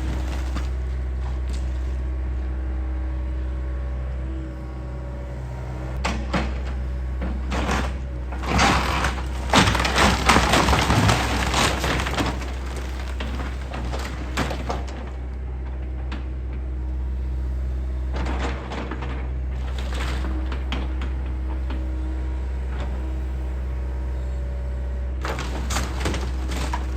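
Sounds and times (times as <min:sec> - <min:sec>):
excavator diesel engine running: 0:00.0 - 0:26.9
wooden frame cracking and splintering: 0:07.6 - 0:15.0, 0:25.2 - 0:26.9.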